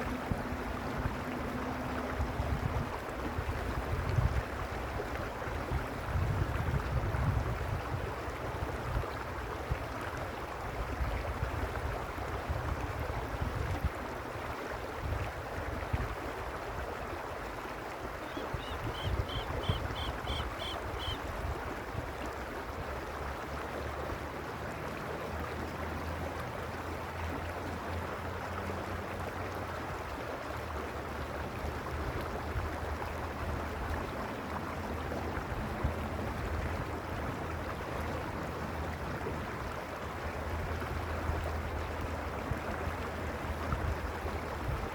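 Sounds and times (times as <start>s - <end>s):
low rumbling: 0.0s - 4.1s
creek rushing over stones: 0.0s - 44.9s.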